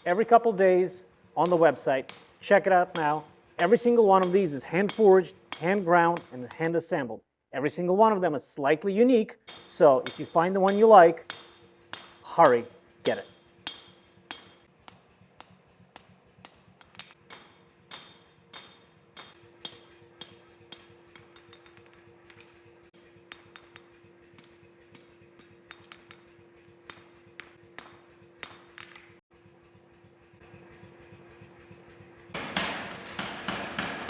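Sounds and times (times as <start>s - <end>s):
light hammer strikes on metal: 1.4s - 6.6s, 9.4s - 29.2s, 32.4s - 34.0s.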